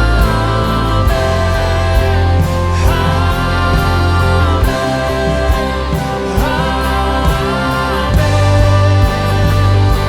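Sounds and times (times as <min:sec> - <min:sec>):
worship music with bass and beat: 0:00.0 - 0:10.0.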